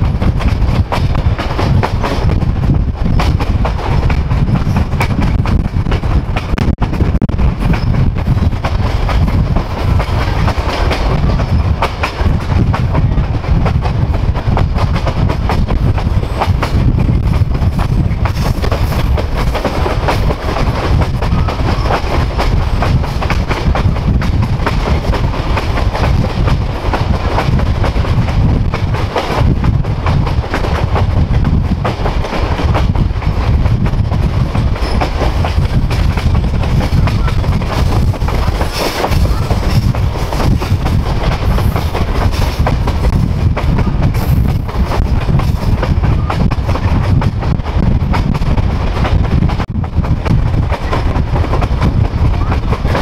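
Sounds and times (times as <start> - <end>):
train wheels rumbling on rails: 0.0 - 53.0
wheels clacking over rail joints: 0.0 - 53.0.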